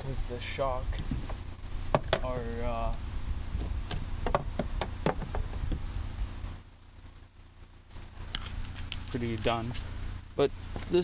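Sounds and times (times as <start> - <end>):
low rumble: 0.1 - 4.8
car hood knocks and clicks: 1.0 - 2.3, 3.6 - 5.6.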